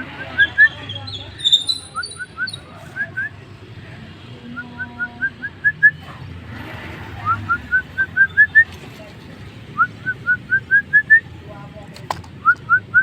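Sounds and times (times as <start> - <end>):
starling whistling: 0.0 - 3.4, 7.2 - 8.7, 9.8 - 11.3.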